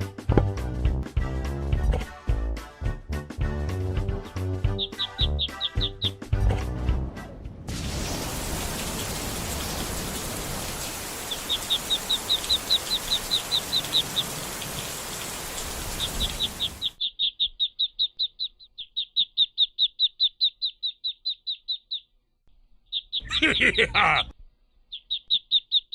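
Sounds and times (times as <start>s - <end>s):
bird chirping: 4.7s - 6.2s, 11.2s - 15.1s, 15.9s - 25.9s.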